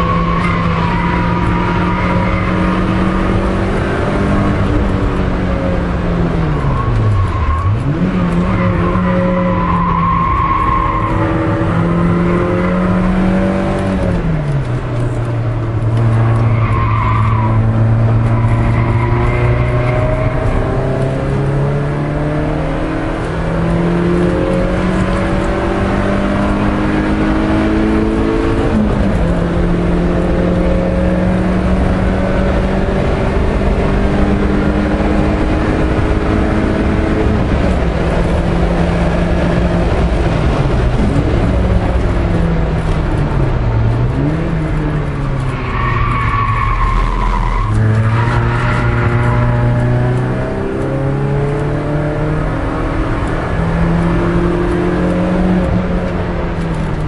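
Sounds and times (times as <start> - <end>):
car engine at high revs: 0.0 - 57.0
tyre squeal: 45.4 - 49.8.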